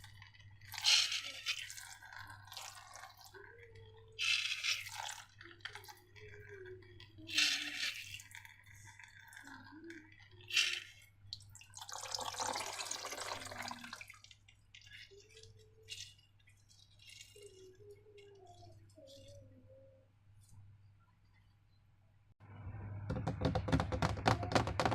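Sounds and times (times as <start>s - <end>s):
wet slime squelching: 0.0s - 12.2s
thick liquid being poured: 0.0s - 19.4s
dripping: 0.0s - 19.5s.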